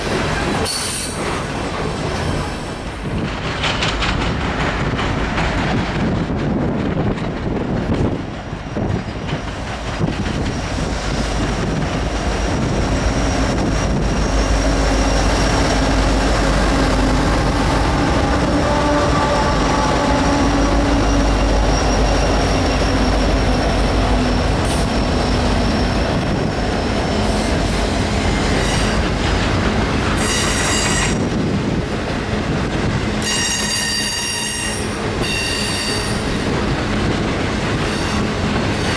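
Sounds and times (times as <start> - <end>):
train wheels rumbling on rails: 0.0 - 38.9
high wheel squealing: 10.1 - 29.2.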